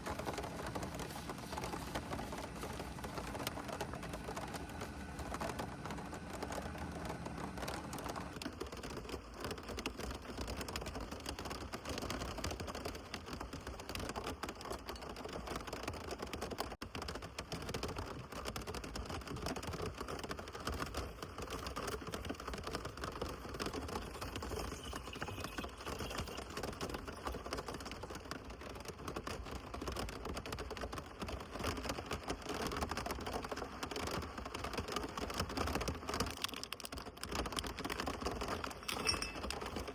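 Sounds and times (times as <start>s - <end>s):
heavy rain falling: 0.0s - 9.1s.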